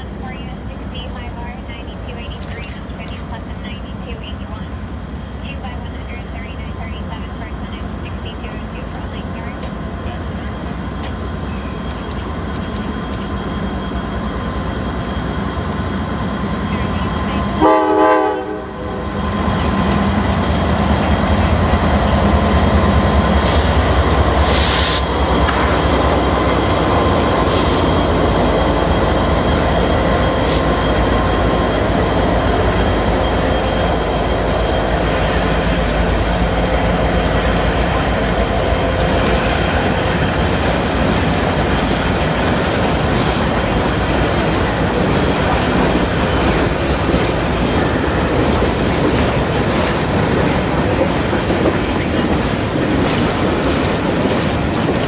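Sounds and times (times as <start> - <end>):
diesel locomotive rumble: 0.0 - 55.0
train wheels clacking over rail joints: 40.4 - 55.0.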